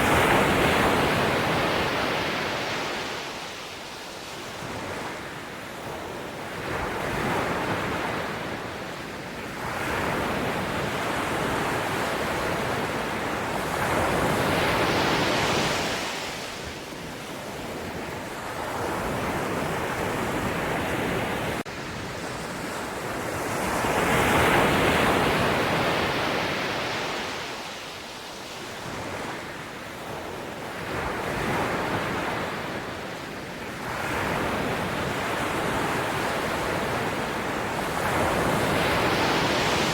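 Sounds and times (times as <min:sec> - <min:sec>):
sea waves breaking: 0:09.7 - 0:27.8, 0:33.8 - 0:39.9.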